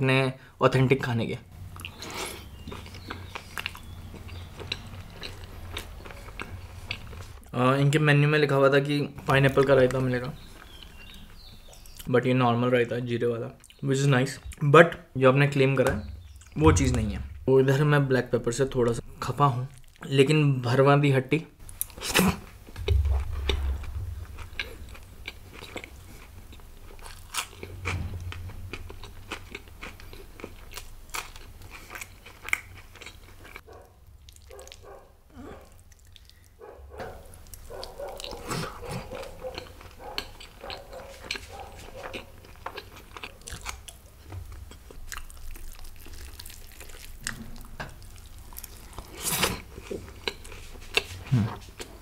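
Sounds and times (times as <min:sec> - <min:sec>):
man chewing food: 0:01.5 - 0:07.5, 0:09.6 - 0:12.1, 0:21.6 - 0:52.0.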